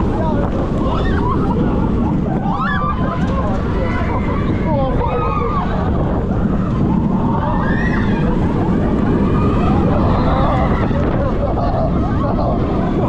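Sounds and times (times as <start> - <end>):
roller coaster train rumble: 0.0 - 13.0
wind rush on microphone: 0.0 - 13.0.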